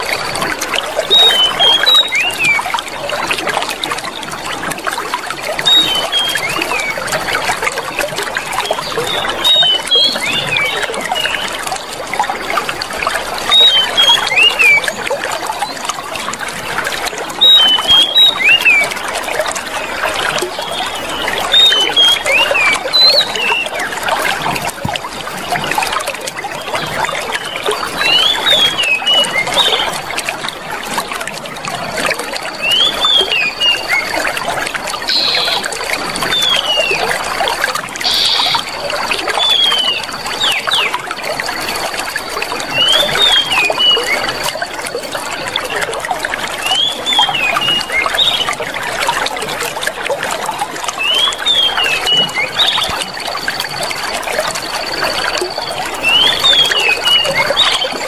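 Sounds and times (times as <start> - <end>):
water trickling and splashing: 0.0 - 58.0
small birds chirping: 1.0 - 2.7, 8.5 - 11.7, 17.4 - 24.0, 35.0 - 37.0, 38.0 - 41.8, 51.0 - 58.0.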